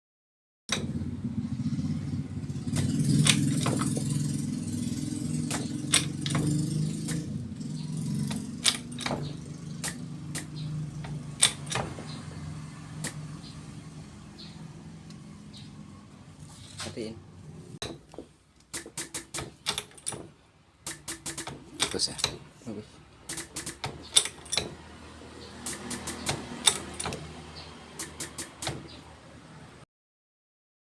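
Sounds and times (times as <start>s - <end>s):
sharp clicks and knocks: 0.7s - 1.0s, 2.6s - 12.3s, 13.0s - 13.3s, 17.8s - 22.5s, 23.2s - 24.9s, 25.6s - 29.0s
diesel engine running: 0.7s - 17.8s.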